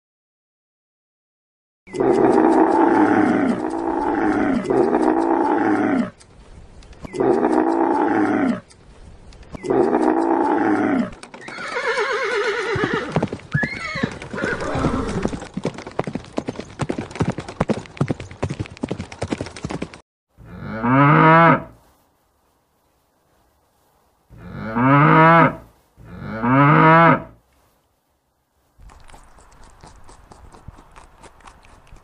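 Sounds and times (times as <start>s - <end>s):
hooves clattering: 1.9s - 20.0s, 28.8s - 32.0s
horse neighing: 9.6s - 15.4s
cow mooing: 20.4s - 21.7s, 24.4s - 27.4s.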